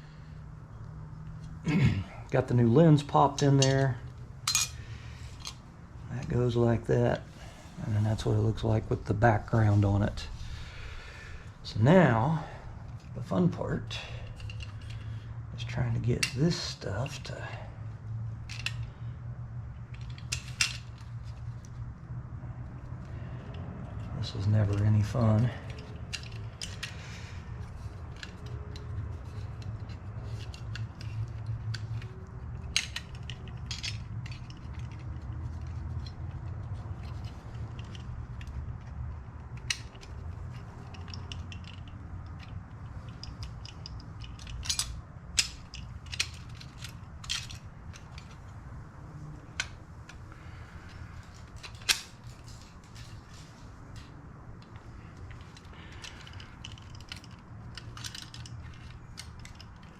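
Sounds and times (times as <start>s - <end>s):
steady low hum: 0.0s - 59.9s
small metal parts clicking and scraping: 2.7s - 6.4s, 12.4s - 17.7s, 18.3s - 21.9s, 22.6s - 59.9s.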